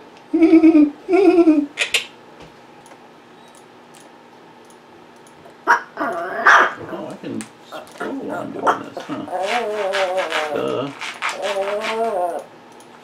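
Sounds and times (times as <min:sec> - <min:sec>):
parrots calling: 0:05.5 - 0:06.8, 0:07.7 - 0:12.5.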